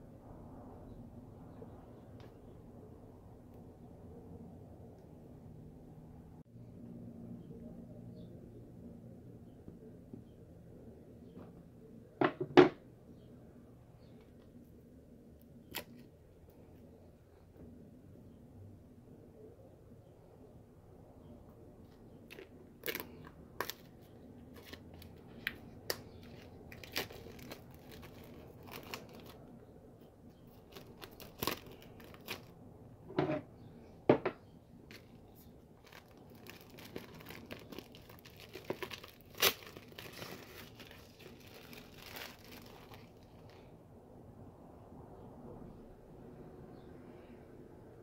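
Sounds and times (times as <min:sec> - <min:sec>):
packaging tearing and crinkling: 0:22.3 - 0:29.4, 0:30.5 - 0:32.5, 0:35.8 - 0:43.5.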